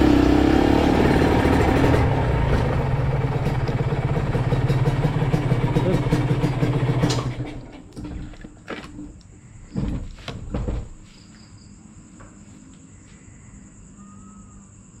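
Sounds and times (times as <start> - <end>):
crickets trilling: 8.2 - 15.0
loud knocks and thumps: 9.7 - 11.1.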